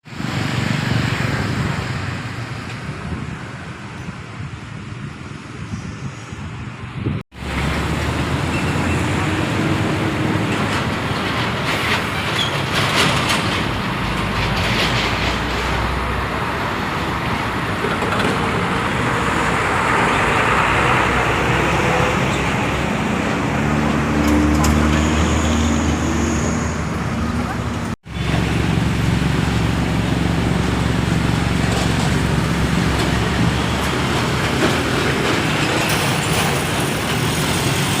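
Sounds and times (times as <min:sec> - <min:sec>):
city street traffic: 0:00.0 - 0:38.0.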